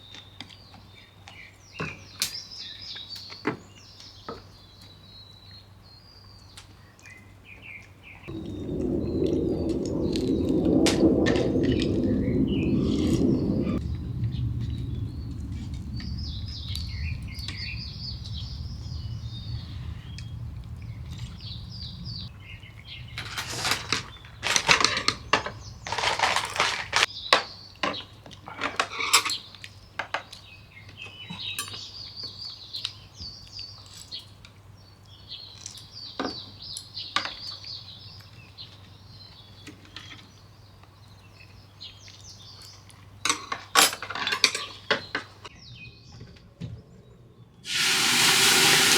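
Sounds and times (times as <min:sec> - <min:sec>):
birds chirping: 0:00.8 - 0:23.2.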